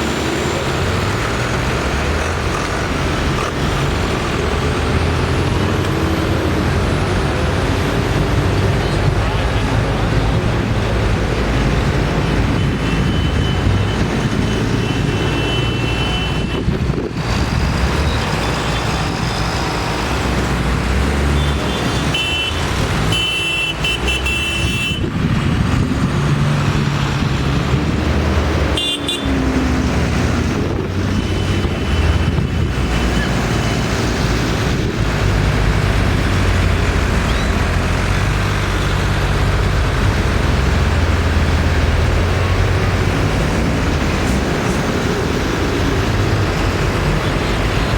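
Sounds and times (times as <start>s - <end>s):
tractor engines running: 0.0s - 47.9s
horn toots: 21.4s - 25.1s, 28.7s - 29.4s.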